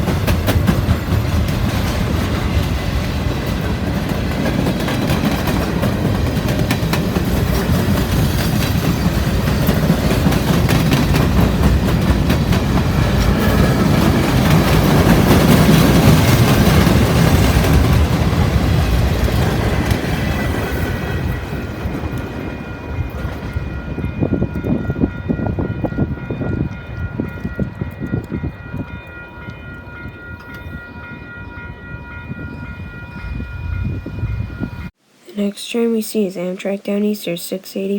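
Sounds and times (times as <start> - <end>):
wheels clacking over rail joints: 0.0 - 23.7
train passing: 0.0 - 37.9.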